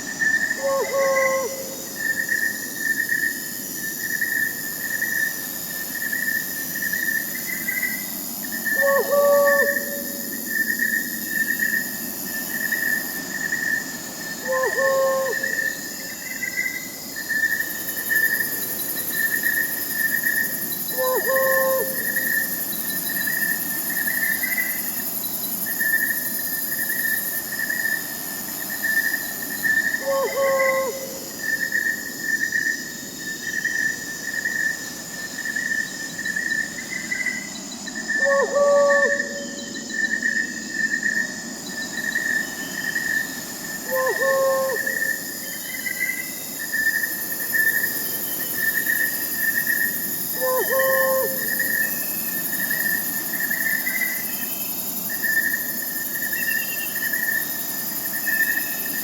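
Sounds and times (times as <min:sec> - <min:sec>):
crickets chirping: 0:00.0 - 0:59.0
high insect hiss: 0:00.0 - 0:59.0
owl hooting: 0:00.6 - 0:01.8, 0:08.7 - 0:10.4, 0:14.4 - 0:15.8, 0:20.9 - 0:22.4, 0:30.0 - 0:31.4, 0:38.2 - 0:39.7, 0:43.8 - 0:45.2, 0:50.4 - 0:51.9.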